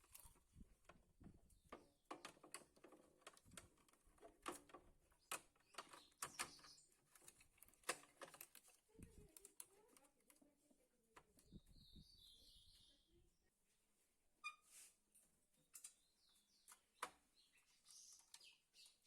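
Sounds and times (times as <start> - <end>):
small tools clicking and tapping: 1.6 - 10.4.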